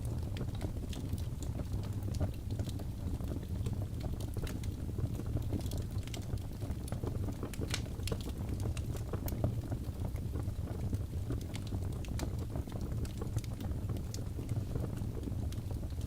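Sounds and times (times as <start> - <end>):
fire crackling and popping: 0.0 - 16.0
fire rumbling: 0.0 - 16.0.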